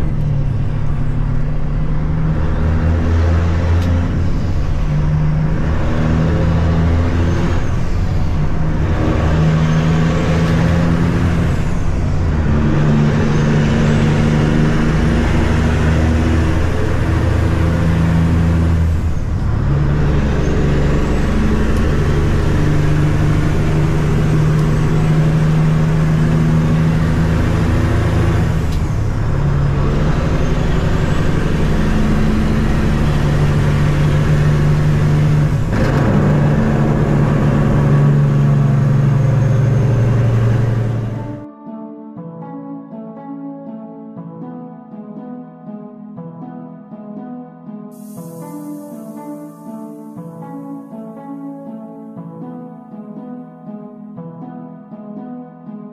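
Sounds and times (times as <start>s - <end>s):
diesel truck engine pulling: 0.0s - 41.5s.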